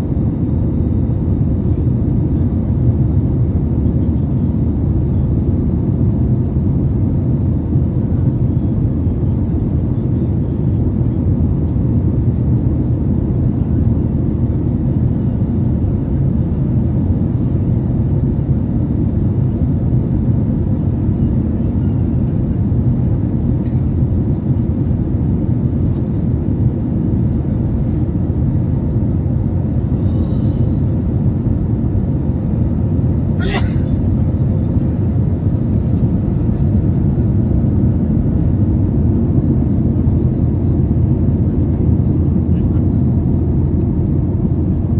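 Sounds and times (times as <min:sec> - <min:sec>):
airliner cabin noise: 0:00.0 - 0:44.9.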